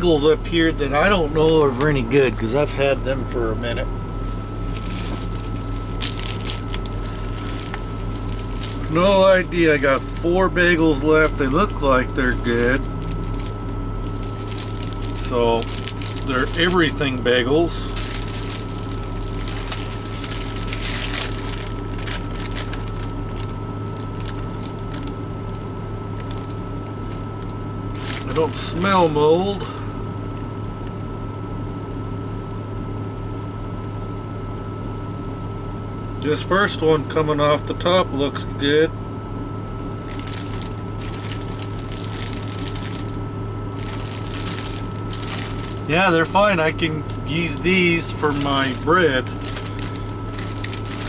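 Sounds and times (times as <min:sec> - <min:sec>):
steady low hum: 0:00.0 - 0:51.0
plastic bag crinkling: 0:04.2 - 0:29.8, 0:40.0 - 0:51.0.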